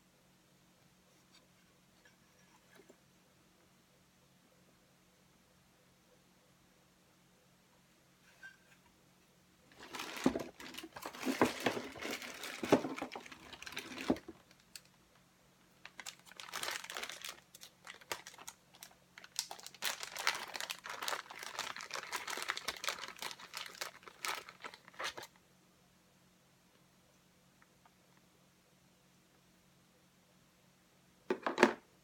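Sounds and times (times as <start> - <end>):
crinkling and rustling: 9.7 - 25.4.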